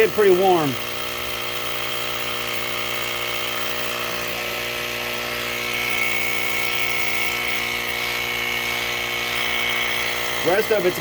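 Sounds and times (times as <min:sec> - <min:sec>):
air compressor running: 0:00.0 - 0:11.0
high whine: 0:00.0 - 0:11.0.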